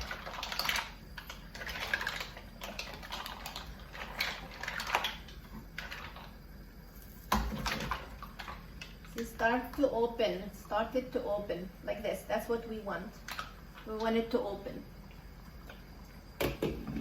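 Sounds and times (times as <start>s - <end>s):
mussel shells clattering in a pot: 0.0s - 6.3s.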